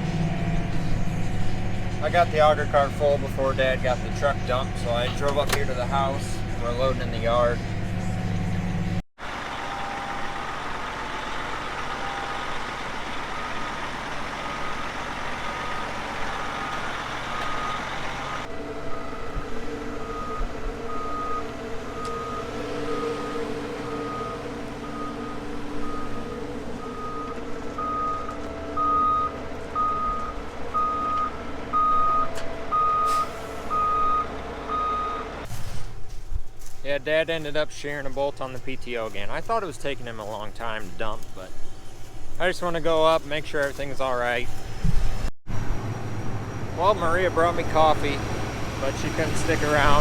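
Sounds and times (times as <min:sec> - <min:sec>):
farm vehicle engine running: 0:00.0 - 0:50.0
backup alarm beeping: 0:03.8 - 0:35.4.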